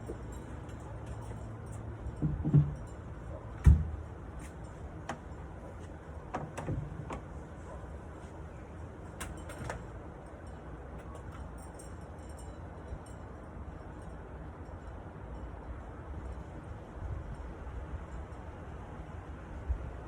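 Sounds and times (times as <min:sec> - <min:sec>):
light clicks and knocks: 0:02.1 - 0:07.4.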